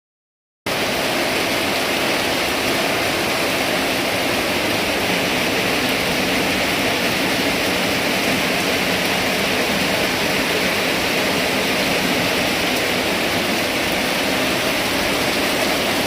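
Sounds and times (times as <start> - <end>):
rain falling: 0.7 - 16.0.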